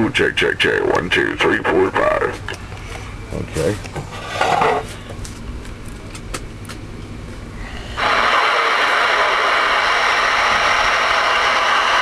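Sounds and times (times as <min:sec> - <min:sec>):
radio static hiss: 0:00.0 - 0:02.5, 0:07.9 - 0:12.0.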